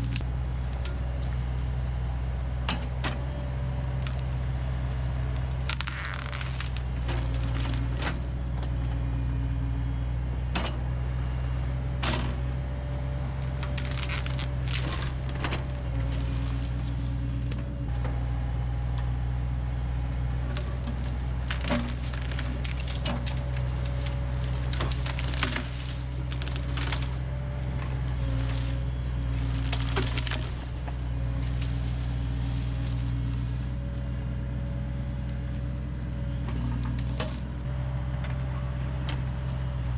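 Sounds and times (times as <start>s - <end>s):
diesel engine running: 0.0s - 39.9s
hydraulics whining: 0.0s - 39.9s
wood cracking and snapping: 3.8s - 4.6s, 5.4s - 8.2s, 13.4s - 17.8s, 20.5s - 33.9s.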